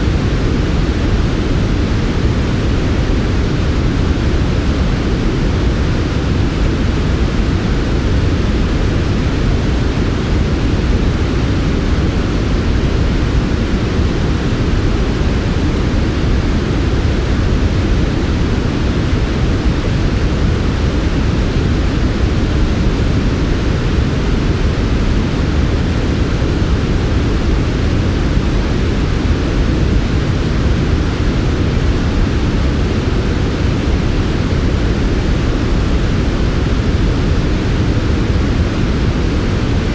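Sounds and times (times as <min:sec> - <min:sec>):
white noise rush: 0:00.0 - 0:39.9.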